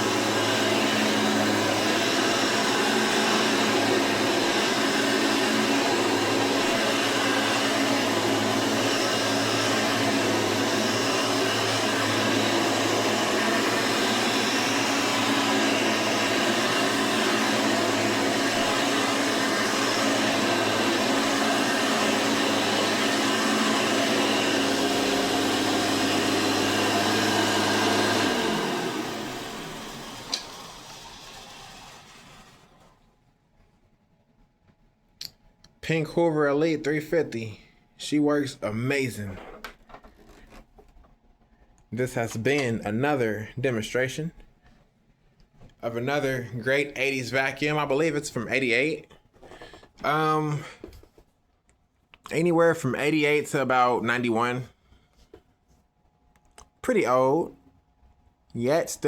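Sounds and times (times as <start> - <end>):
vacuum cleaner running: 0.0 - 33.1, 45.8 - 51.1, 52.3 - 54.7.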